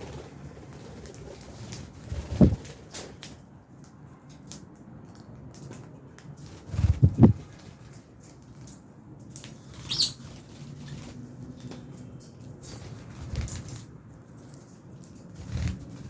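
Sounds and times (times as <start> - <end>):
wings flapping: 0.0 - 3.3, 6.4 - 7.7, 12.6 - 13.8, 15.4 - 16.0.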